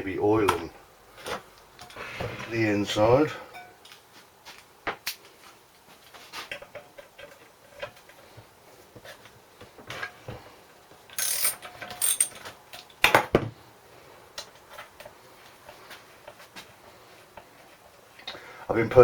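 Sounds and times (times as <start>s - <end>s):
ratchet-like clicking of spring starter: 11.2s - 12.3s.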